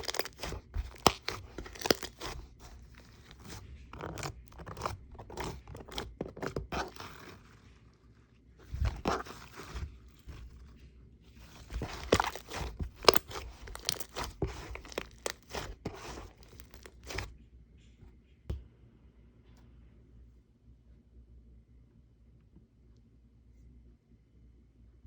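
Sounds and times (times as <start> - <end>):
slime crunching and crackling: 0.0 - 10.8, 11.4 - 17.3.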